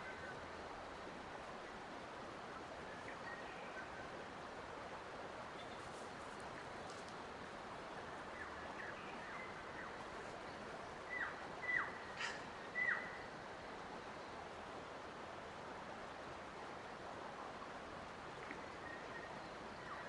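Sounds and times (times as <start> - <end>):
bird calling: 11.1 - 13.3.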